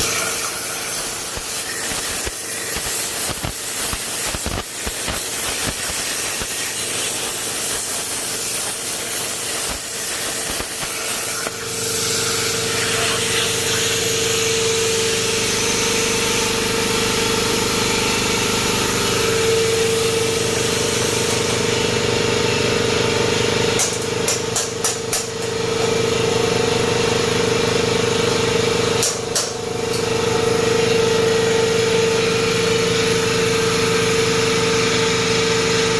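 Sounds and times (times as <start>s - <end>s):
plasma cutter hissing: 0.0s - 16.8s, 17.9s - 21.8s
mechanical hum with tone: 0.0s - 35.9s.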